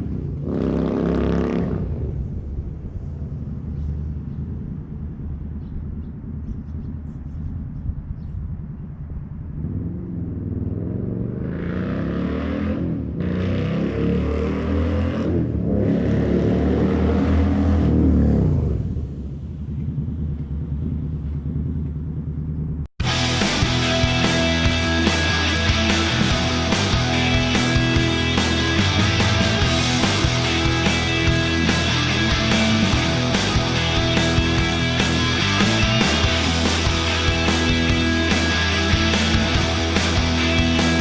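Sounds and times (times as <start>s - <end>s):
motorcycle engine rumbling: 0.0s - 12.2s, 15.3s - 41.0s
rock music: 23.0s - 41.0s.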